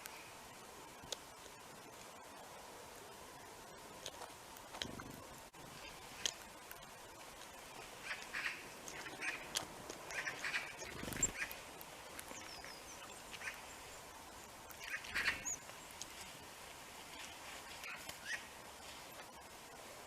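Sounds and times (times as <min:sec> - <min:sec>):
small birds calling: 0:04.8 - 0:16.4, 0:17.0 - 0:19.4.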